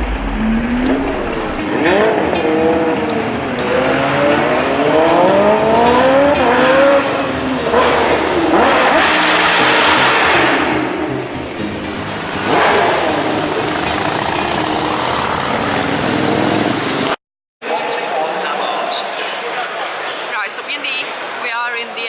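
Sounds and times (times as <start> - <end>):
vehicle engines revving: 0.0 - 17.2.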